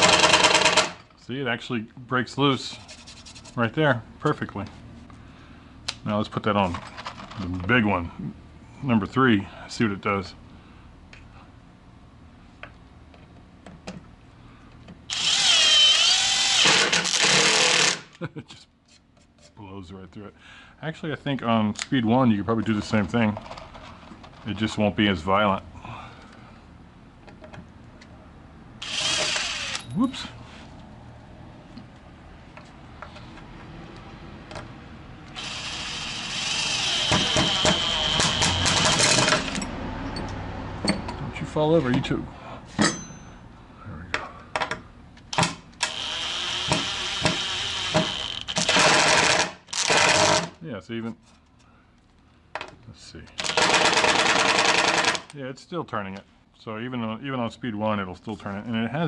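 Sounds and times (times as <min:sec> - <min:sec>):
cordless drill whining: 0:15.1 - 0:18.0, 0:28.8 - 0:29.8, 0:35.3 - 0:39.6, 0:45.8 - 0:50.4.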